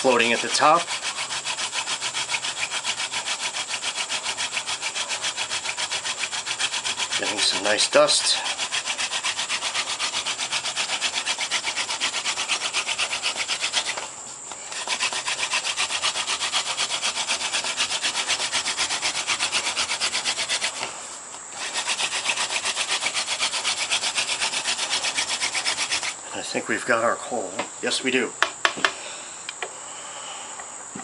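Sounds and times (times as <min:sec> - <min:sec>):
wooden spindle grinding into board: 0:00.0 - 0:14.1, 0:14.7 - 0:26.2.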